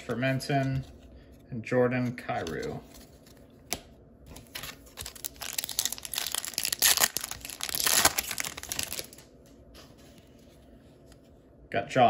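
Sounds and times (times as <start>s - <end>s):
card pack wrapper crackling: 4.3s - 9.3s.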